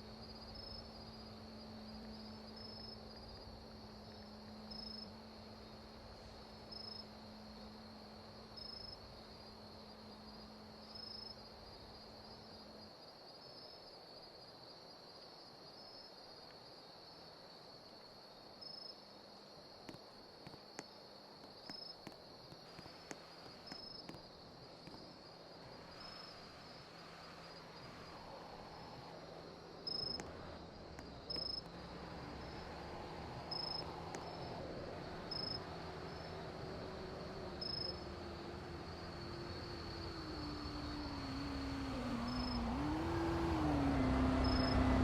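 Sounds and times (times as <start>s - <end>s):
faint clicks: 19.8s - 25.1s, 33.5s - 34.6s
crickets trilling: 21.4s - 45.0s.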